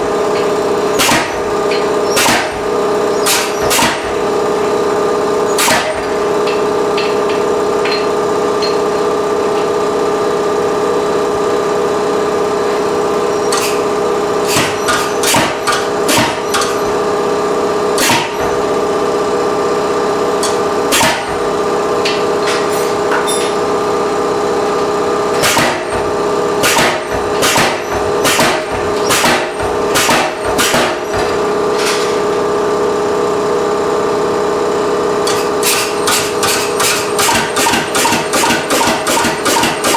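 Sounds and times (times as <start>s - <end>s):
machine hum: 0.0s - 39.9s
power hammer striking hot steel: 0.3s - 4.7s, 5.5s - 8.9s, 13.4s - 17.0s, 17.9s - 18.6s, 20.4s - 23.6s, 25.3s - 32.1s, 35.2s - 39.9s.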